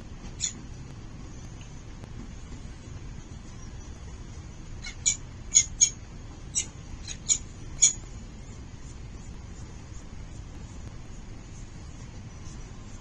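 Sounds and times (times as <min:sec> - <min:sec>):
falcons squeaking: 0:00.3 - 0:00.6, 0:04.8 - 0:08.1.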